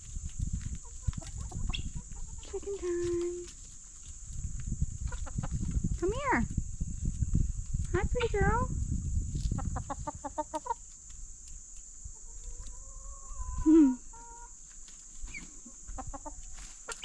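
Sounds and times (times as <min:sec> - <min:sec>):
hens clucking: 0:00.2 - 0:06.0, 0:09.4 - 0:11.2, 0:11.8 - 0:17.0.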